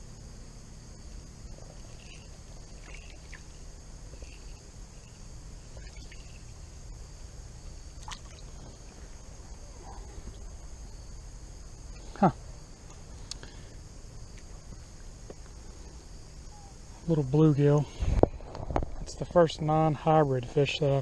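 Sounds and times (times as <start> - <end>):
high insect drone: 0.0 - 21.0
faint chirps: 1.1 - 7.0, 7.9 - 18.1
water sloshing and trickling: 1.6 - 4.6, 5.6 - 6.6, 7.9 - 9.4.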